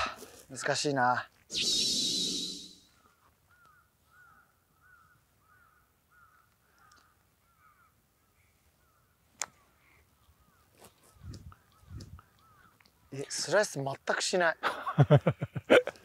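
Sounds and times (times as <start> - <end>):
distant bird calling: 1.5 - 13.2.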